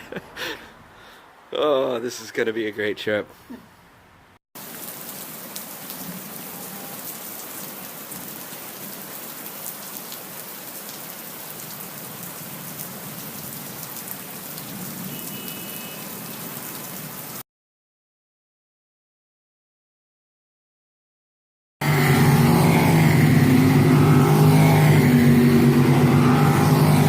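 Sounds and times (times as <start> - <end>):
steady rain falling: 4.6 - 17.4.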